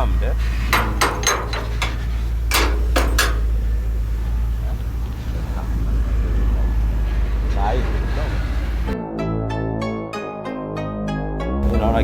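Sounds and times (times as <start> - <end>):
sharp knocks: 0.7 - 3.7.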